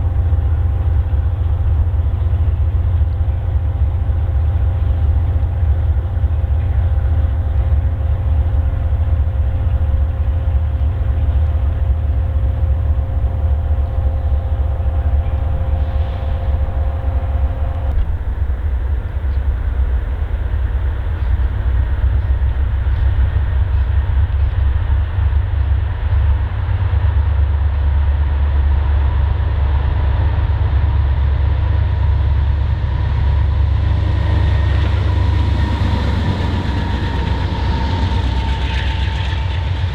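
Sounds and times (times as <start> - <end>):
steady pitched tones: 0.0 - 25.9
freight train rumbling: 0.0 - 39.9.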